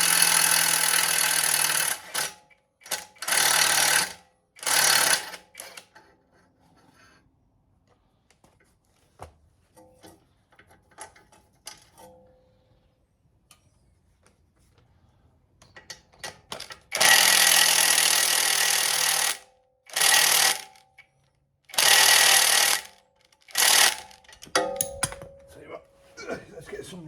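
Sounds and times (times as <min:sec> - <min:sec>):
tools clicking: 0:23.2 - 0:25.5
impact wrench hammering: 0:23.6 - 0:25.6.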